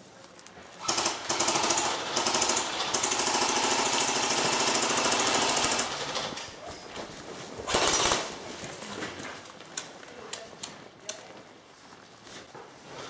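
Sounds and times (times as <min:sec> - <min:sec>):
airsoft gun firing bursts: 0:00.8 - 0:06.4, 0:07.7 - 0:08.4.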